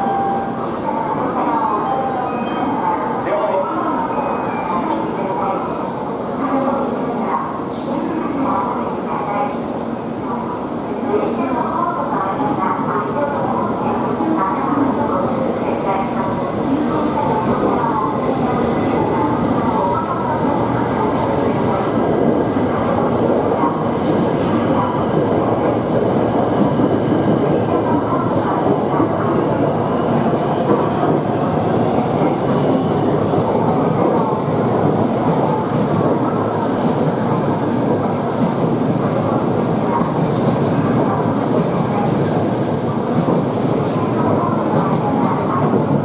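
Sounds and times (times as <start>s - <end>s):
rails clickety-clack: 16.2s - 46.0s.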